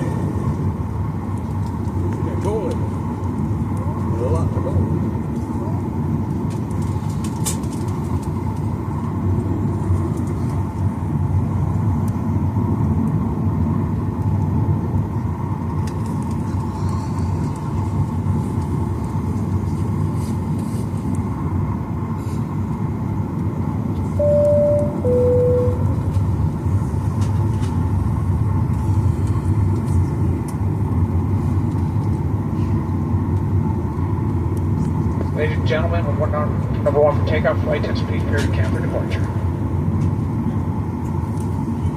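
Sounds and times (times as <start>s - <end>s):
aircraft cabin rumble: 0.0s - 41.9s
two-tone cabin chime: 24.2s - 26.0s.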